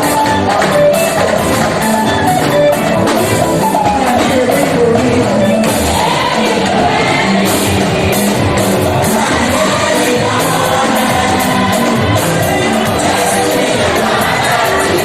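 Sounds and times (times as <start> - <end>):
band with drums: 0.0 - 15.0
congregation singing: 3.8 - 15.0
choir singing gospel: 4.4 - 15.0.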